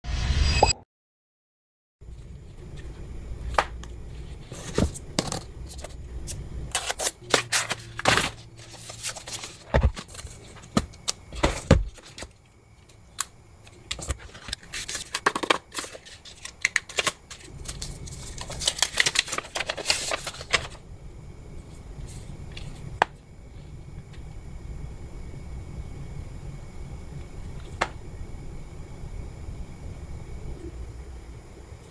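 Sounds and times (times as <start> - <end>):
cardboard and paper rustling: 3.5 - 20.8, 21.7 - 22.8
packaging clicks and taps: 13.9 - 17.9.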